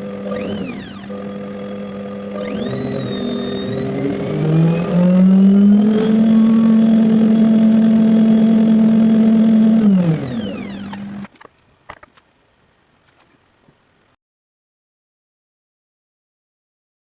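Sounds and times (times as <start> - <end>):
washing machine motor whine: 0.0 - 11.3.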